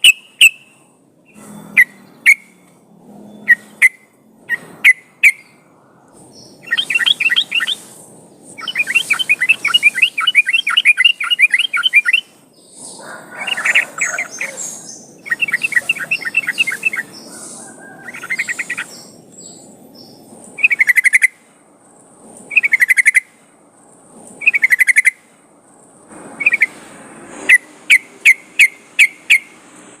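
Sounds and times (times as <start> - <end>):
bulbul singing: 0.0 - 5.6, 6.2 - 21.4, 22.5 - 23.3, 24.4 - 25.3, 27.5 - 29.6.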